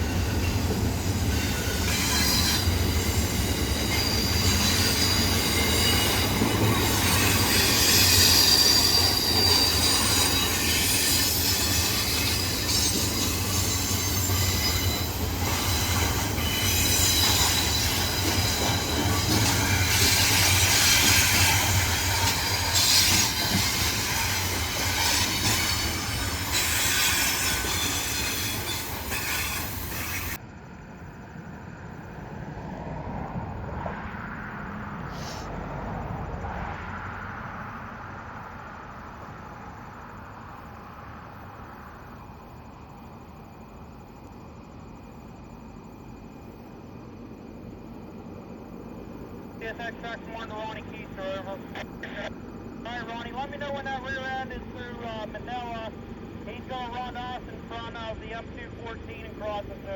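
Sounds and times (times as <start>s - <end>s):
steel wheels squealing: 0.0s - 30.4s
railroad cars rumbling: 0.0s - 59.9s.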